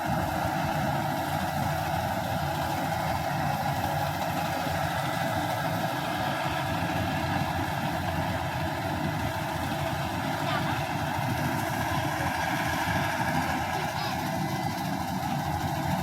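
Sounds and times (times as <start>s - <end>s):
combine harvester engine droning: 0.0s - 16.0s.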